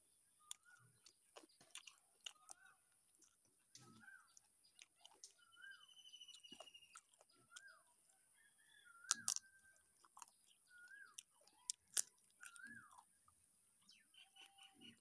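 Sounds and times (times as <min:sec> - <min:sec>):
birds calling: 0:00.0 - 0:15.0
wet mouth clicks of eating: 0:00.4 - 0:04.1, 0:09.0 - 0:13.1
crunchy bite into fried chicken: 0:00.4 - 0:05.4, 0:08.4 - 0:13.1
bird trill: 0:03.7 - 0:15.0.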